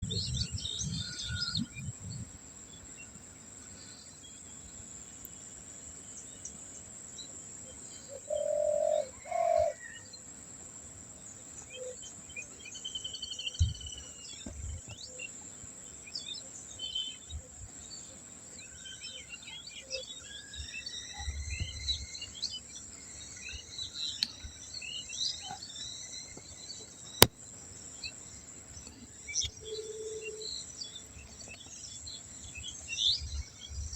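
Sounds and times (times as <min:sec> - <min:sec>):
wild birds chirping: 0:00.0 - 0:33.9.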